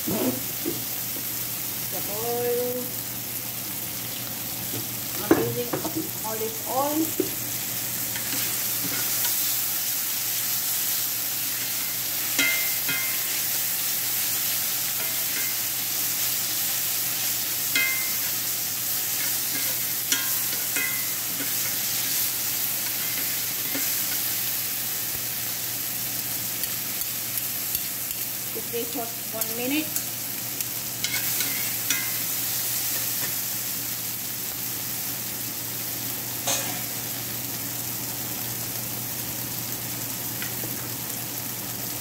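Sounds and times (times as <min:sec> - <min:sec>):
shrimp sizzling in oil: 0:00.0 - 0:42.0
spatula clinking against pan: 0:12.4 - 0:13.3, 0:17.7 - 0:18.3, 0:19.2 - 0:21.8.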